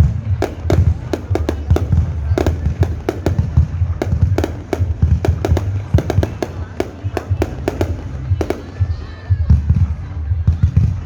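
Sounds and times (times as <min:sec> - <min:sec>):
fireworks bangs: 0:00.0 - 0:10.3
continuous low rumble: 0:00.0 - 0:11.0.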